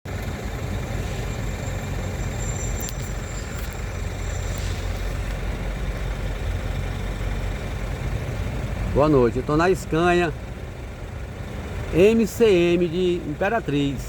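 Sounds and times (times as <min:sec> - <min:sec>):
diesel truck engine idling: 0:00.0 - 0:14.0
high whine: 0:00.1 - 0:06.2.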